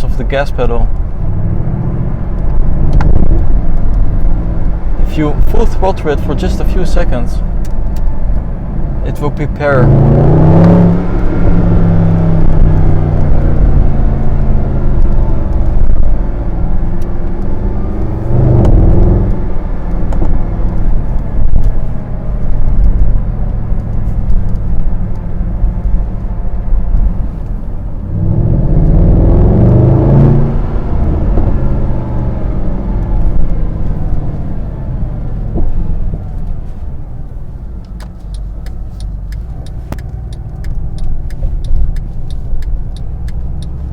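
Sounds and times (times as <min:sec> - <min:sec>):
car engine revving loud: 0:09.1 - 0:21.1, 0:28.0 - 0:36.5.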